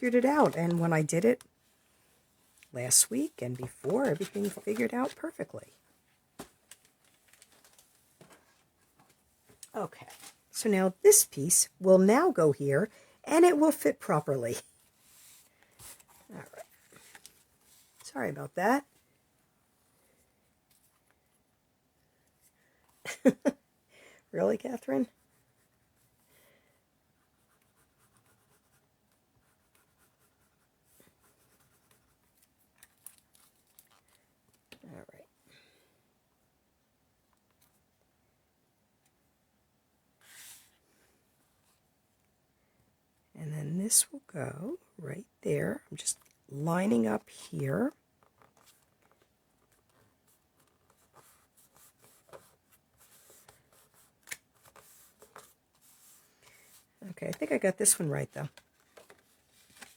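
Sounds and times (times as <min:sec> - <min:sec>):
cardstock rustling: 0:00.1 - 0:01.1, 0:02.9 - 0:05.4, 0:50.7 - 0:59.9
cardstock rustling and tapping: 0:03.6 - 0:05.3, 0:58.5 - 0:59.9.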